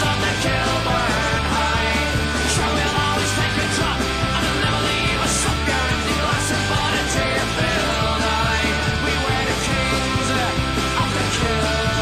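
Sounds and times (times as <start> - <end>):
rock music with singing and guitar: 0.0 - 12.0.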